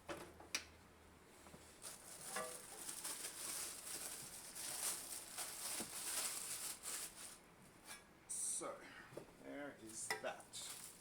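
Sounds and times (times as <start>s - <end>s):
rustling handling noise: 1.4s - 8.0s, 9.8s - 11.0s.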